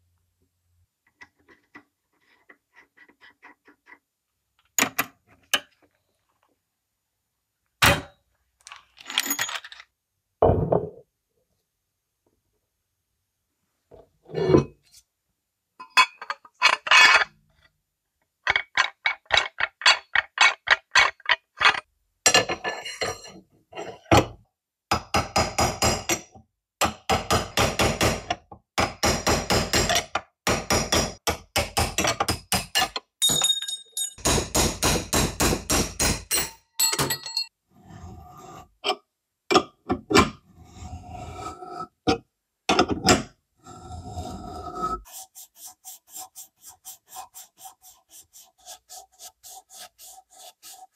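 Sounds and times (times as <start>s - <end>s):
metal clinks: 33.2s - 34.2s, 36.3s - 37.5s.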